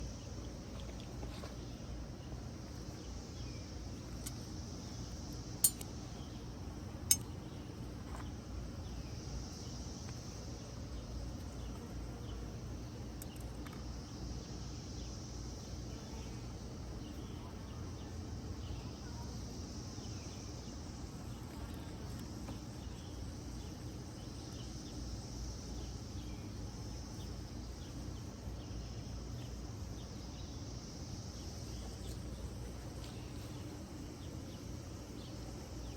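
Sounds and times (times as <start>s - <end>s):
high insect chorus: 0.0s - 35.9s
steady low hum: 0.0s - 35.9s
sharp clinks: 5.6s - 5.9s.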